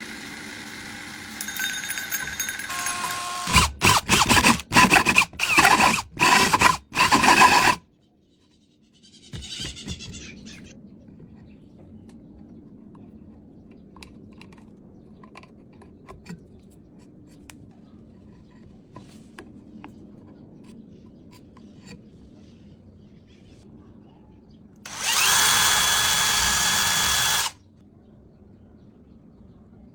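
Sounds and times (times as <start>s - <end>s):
faint handling scrapes and clicks: 13.4s - 23.6s.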